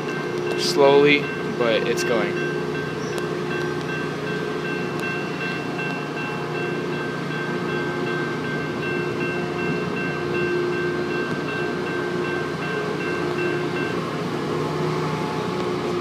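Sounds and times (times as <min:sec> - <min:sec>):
diesel locomotive rumbling: 0:00.0 - 0:16.0
pulsing whining tones: 0:00.0 - 0:16.0.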